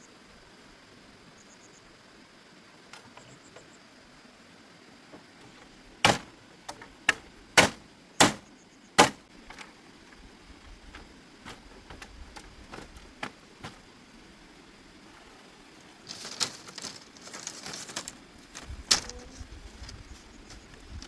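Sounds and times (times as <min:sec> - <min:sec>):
sharp knocks: 0:06.0 - 0:08.4, 0:09.0 - 0:09.2.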